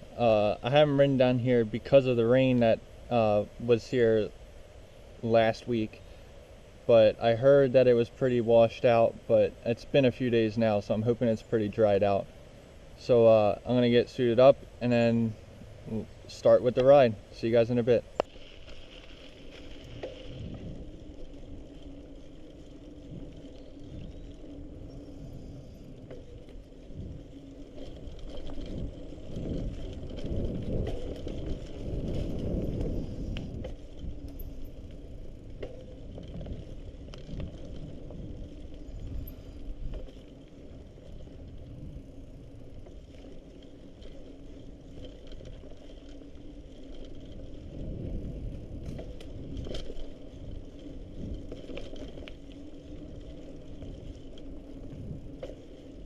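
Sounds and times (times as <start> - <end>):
bike tyres rumbling on dirt: 0.0 - 56.0
small clicks: 48.8 - 55.8.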